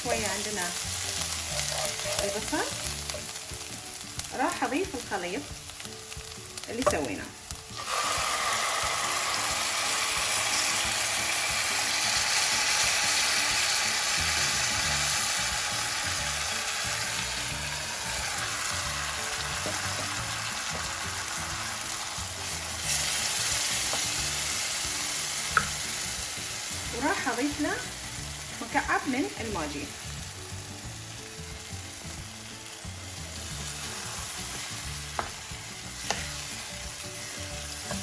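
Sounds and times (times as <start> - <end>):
chicken sizzling in a pan: 0.0 - 38.0
stirring in a pan: 0.7 - 7.9.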